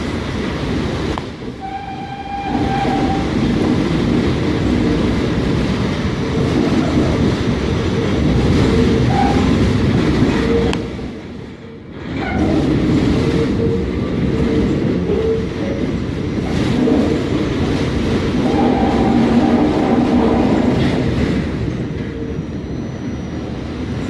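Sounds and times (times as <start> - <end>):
clatter of train wheels: 0.0 - 24.0
train rumbling on rails: 0.0 - 24.0.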